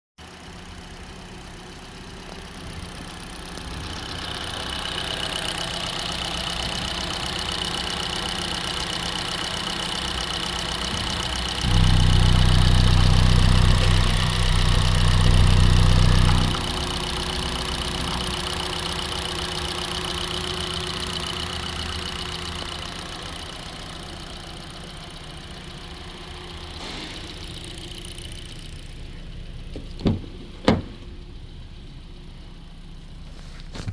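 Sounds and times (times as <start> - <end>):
car engine idling: 0.2 - 33.9
high whine: 11.6 - 16.6.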